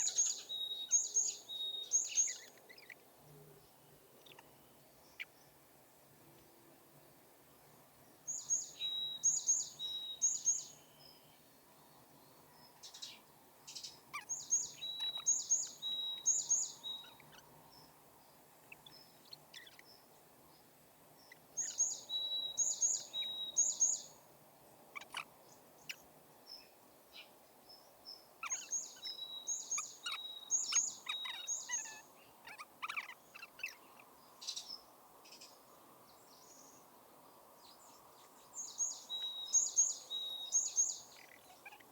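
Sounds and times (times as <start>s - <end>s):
bird chirps: 0.0s - 3.1s, 4.2s - 5.6s, 8.3s - 11.4s, 12.3s - 18.0s, 18.6s - 20.1s, 21.2s - 24.3s, 24.9s - 36.9s, 37.6s - 41.9s.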